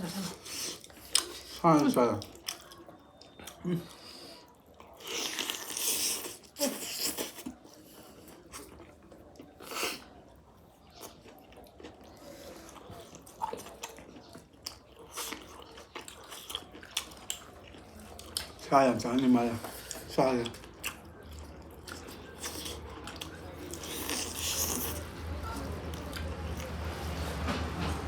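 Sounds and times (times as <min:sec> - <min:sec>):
person chewing and biting food: 0:10.9 - 0:18.6, 0:19.6 - 0:25.1.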